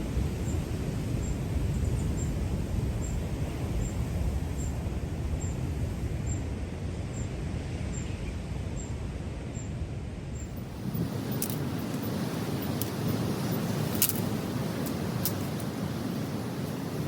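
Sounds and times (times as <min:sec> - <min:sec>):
ocean surf rumble: 0:10.5 - 0:17.0.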